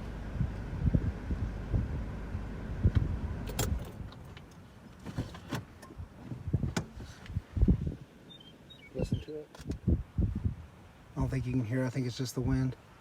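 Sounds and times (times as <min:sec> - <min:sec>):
low car rumble: 0:00.0 - 0:07.9.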